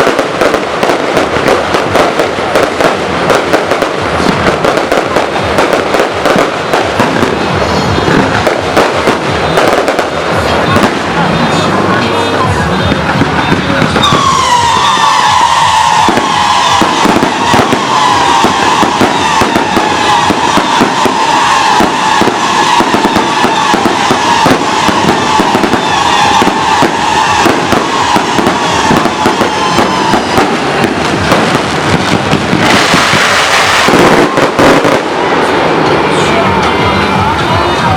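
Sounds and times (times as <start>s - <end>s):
firecrackers crackling: 0.0s - 37.9s
loud hissing rush: 0.0s - 37.9s.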